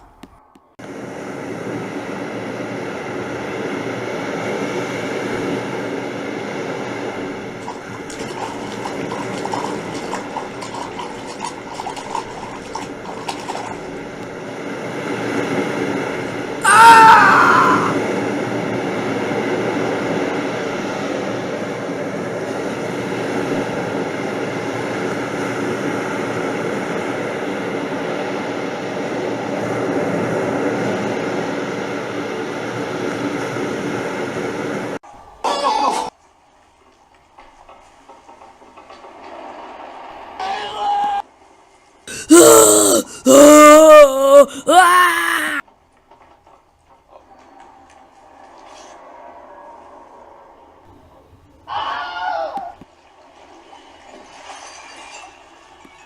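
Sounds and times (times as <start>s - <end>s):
rushing flood water: 7.2s - 14.4s.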